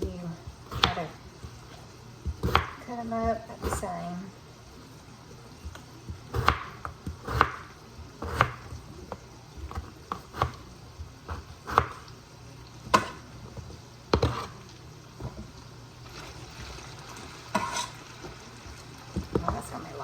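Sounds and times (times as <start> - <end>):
knife chopping on cutting board: 0.7 - 1.1, 2.2 - 3.9, 5.6 - 12.0, 12.9 - 13.3, 14.1 - 14.6, 17.6 - 17.9.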